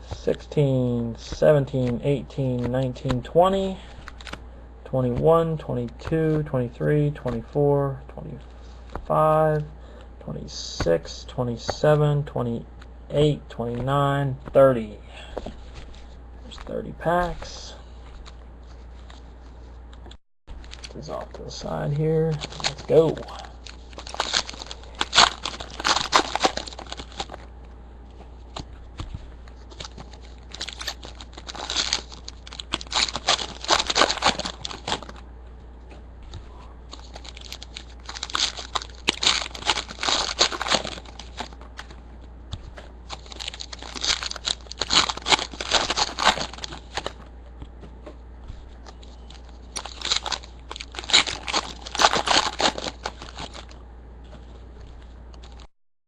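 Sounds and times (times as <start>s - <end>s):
card wrappers tearing and crinkling: 1.3s - 4.4s, 20.6s - 27.5s, 28.5s - 35.2s, 36.9s - 41.9s, 43.1s - 47.2s, 48.8s - 53.8s, 55.4s - 55.7s.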